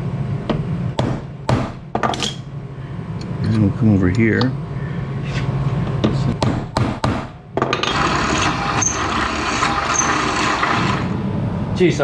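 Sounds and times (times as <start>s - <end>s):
metal tools knocking and clanking: 2.0s - 2.5s, 7.6s - 8.5s.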